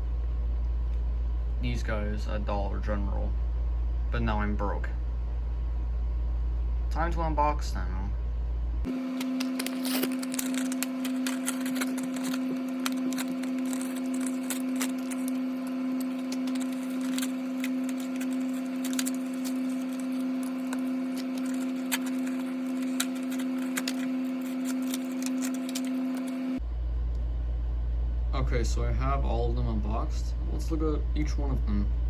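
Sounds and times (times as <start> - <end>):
low hum: 0.0 - 32.0
toy packaging clicking and crackling: 8.9 - 26.5.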